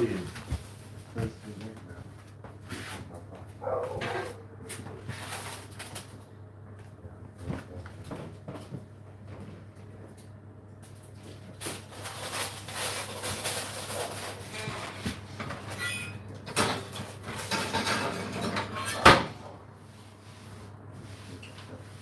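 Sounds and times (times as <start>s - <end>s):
steady low hum: 0.0s - 22.0s
objects clattering and knocking: 3.8s - 6.2s, 11.6s - 19.5s
squeaks: 15.7s - 16.2s.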